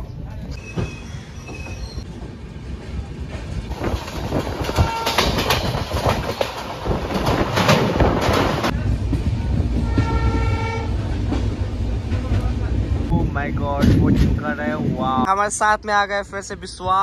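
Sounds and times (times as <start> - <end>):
train rumble: 0.0 - 17.0
wheels clattering over rail joints: 3.3 - 9.2.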